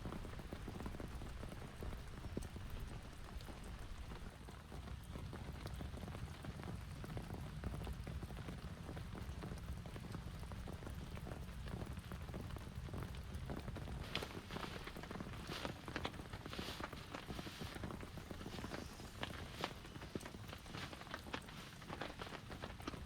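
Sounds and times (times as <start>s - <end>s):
raindrops ticking: 0.1s - 23.0s
heavy rain hissing: 14.0s - 23.0s.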